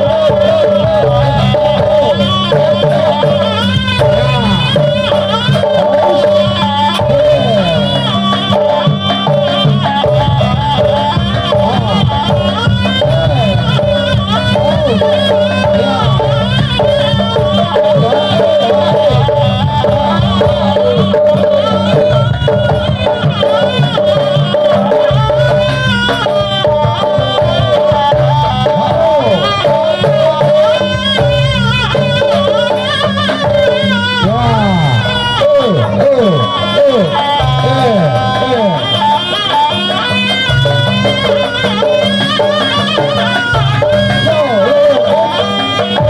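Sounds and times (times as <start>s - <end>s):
repeated pitched note: 0.0s - 46.0s
traditional ensemble music: 0.0s - 46.0s
wavering bending melody: 0.0s - 46.0s.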